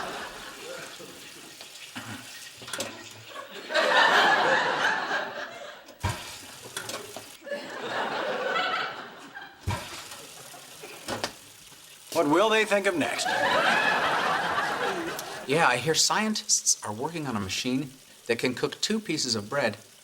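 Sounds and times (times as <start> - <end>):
studio audience laughing: 0.0 - 1.6, 3.2 - 6.0, 7.4 - 11.0, 13.1 - 15.5.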